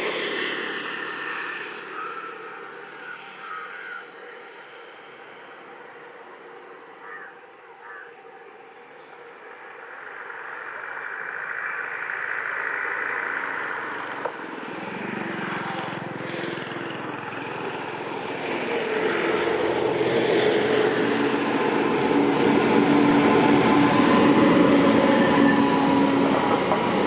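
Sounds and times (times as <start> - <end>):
electric locomotive approaching: 0.0 - 27.0
bird calling: 7.0 - 8.1
train wheels rumbling on rails: 9.2 - 27.0.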